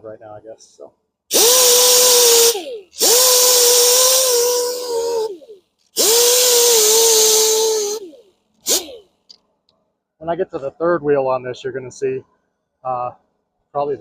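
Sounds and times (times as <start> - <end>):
power grinder grinding metal: 1.3 - 9.0.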